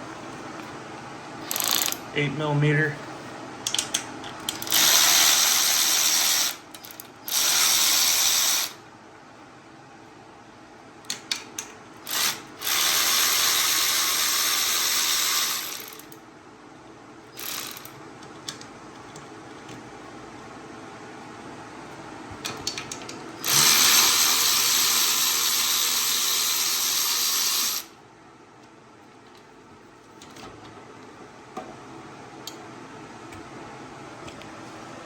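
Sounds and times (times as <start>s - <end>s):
power tool spinning out bolts: 1.4s - 2.0s, 4.4s - 8.8s, 12.1s - 16.2s, 23.4s - 27.9s.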